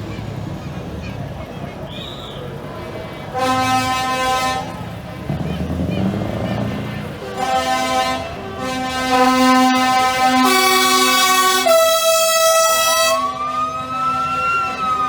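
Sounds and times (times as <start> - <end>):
truck air horns chords: 3.2 - 15.0
siren rising: 12.0 - 15.0.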